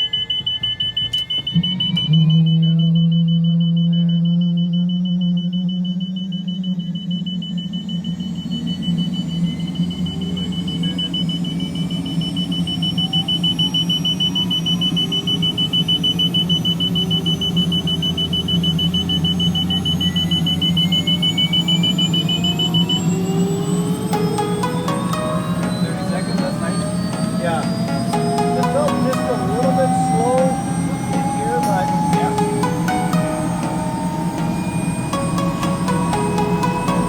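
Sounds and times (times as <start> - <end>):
high-pitched warning tone: 18.5 - 37.0
helicopter turbine whine rising: 18.6 - 37.0.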